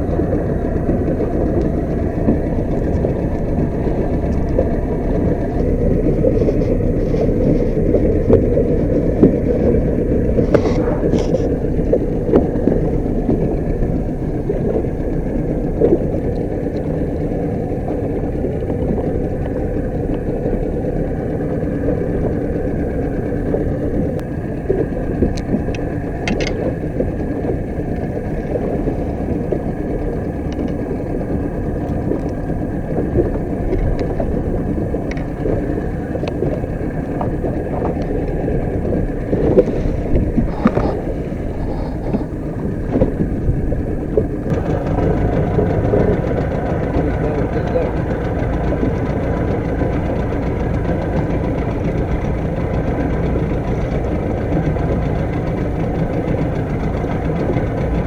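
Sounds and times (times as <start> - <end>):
boat engine drone: 0.0 - 58.0.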